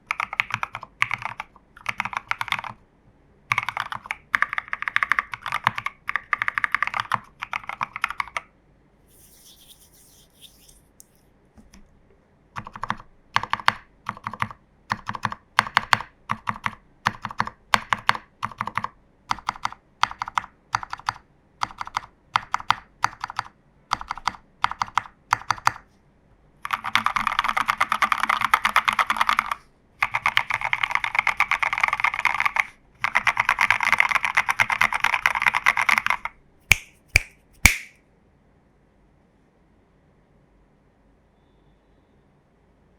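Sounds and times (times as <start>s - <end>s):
mechanical keyboard typing: 0.0s - 2.8s, 3.5s - 8.5s, 12.6s - 25.9s, 26.6s - 36.8s.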